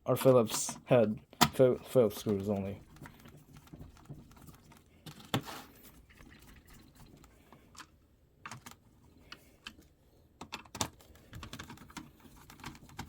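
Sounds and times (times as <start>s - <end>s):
plastic and metal parts clicking: 7.2s - 13.0s.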